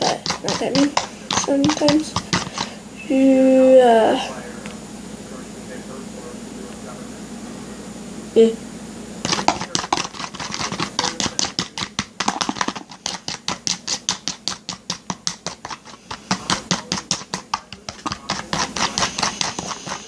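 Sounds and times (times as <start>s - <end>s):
slime clicking and scraping: 0.0s - 2.8s, 9.3s - 20.0s.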